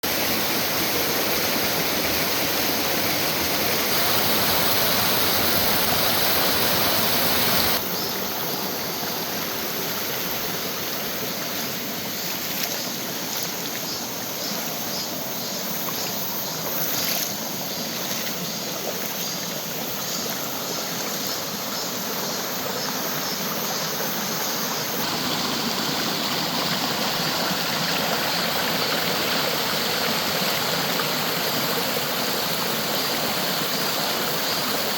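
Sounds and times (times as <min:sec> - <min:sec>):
stream rushing water: 0:00.0 - 0:34.9.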